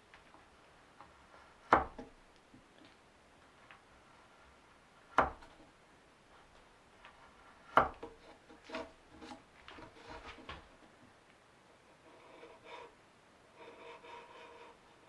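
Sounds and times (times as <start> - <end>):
sharp wooden knocks: 5.2 - 5.6, 7.7 - 9.4.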